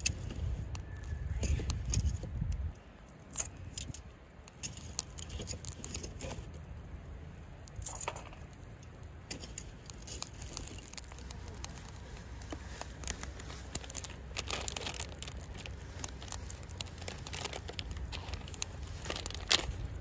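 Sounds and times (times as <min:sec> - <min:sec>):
low steady rumble: 0:00.0 - 0:20.0
wood fire crackling: 0:00.0 - 0:20.0
sharp fire pops: 0:07.5 - 0:20.0.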